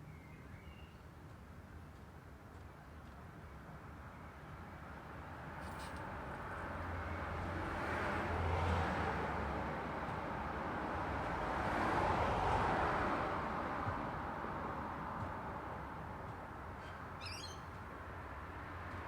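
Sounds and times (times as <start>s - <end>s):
vehicles passing: 5.4s - 19.0s.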